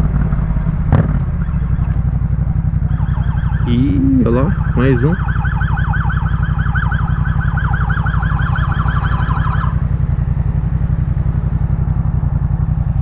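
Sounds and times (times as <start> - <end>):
motorcycle engine running: 0.0 - 13.0
police siren yelping: 1.3 - 10.0.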